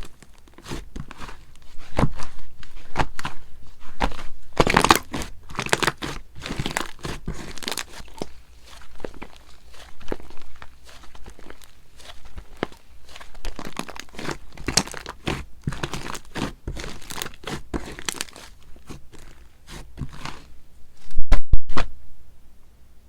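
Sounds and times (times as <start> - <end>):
slime crackling and crunching: 0.0 - 20.6.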